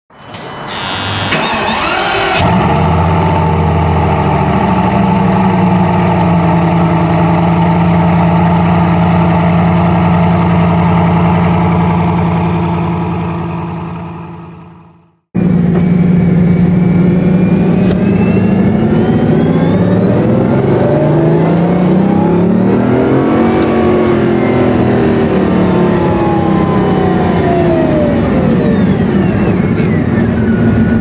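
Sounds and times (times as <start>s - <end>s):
engine starter cranking: 0.2s - 2.7s
car engine idling: 1.7s - 19.6s.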